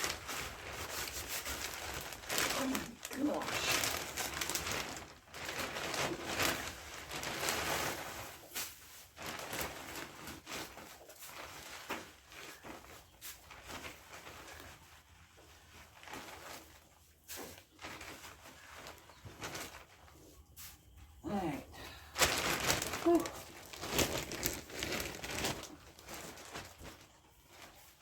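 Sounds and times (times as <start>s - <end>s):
dry rustling and crunching: 0.0s - 28.0s.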